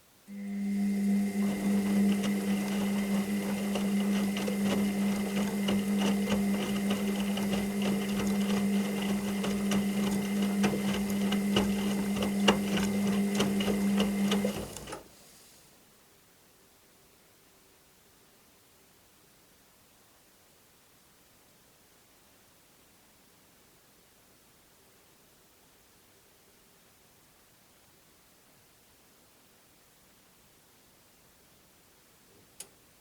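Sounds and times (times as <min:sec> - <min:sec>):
washing machine running: 0:00.3 - 0:15.1.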